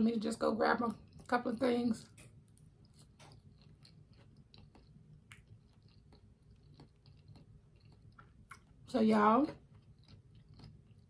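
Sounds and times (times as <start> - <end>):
wet mouth clicks chewing: 2.1 - 8.8, 9.6 - 11.0.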